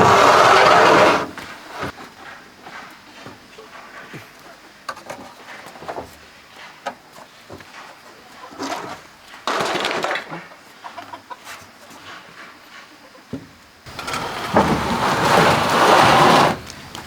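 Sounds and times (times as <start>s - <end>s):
loud rustling: 0.0s - 1.9s, 13.9s - 17.0s.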